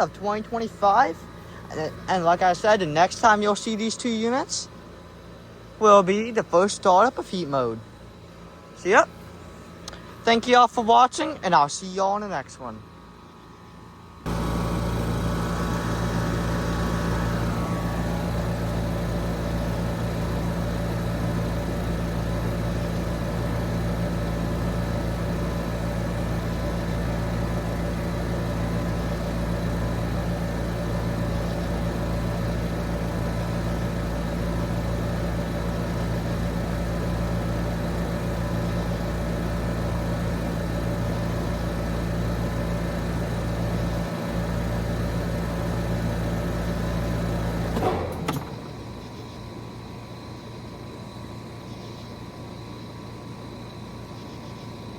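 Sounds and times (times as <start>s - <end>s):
high whine: 0.0s - 4.8s
heat pump humming: 0.0s - 54.9s.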